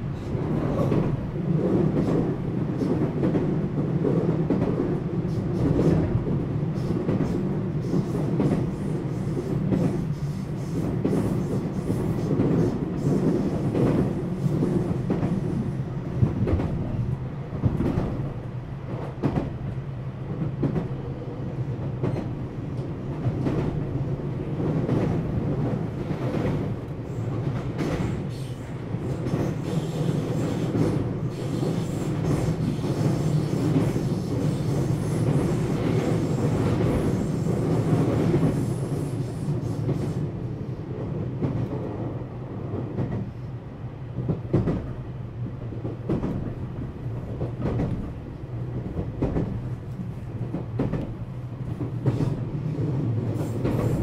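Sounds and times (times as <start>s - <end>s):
wheels rumbling on rail: 0.0s - 54.0s
clacks over rail joints: 44.2s - 44.9s, 47.2s - 54.0s.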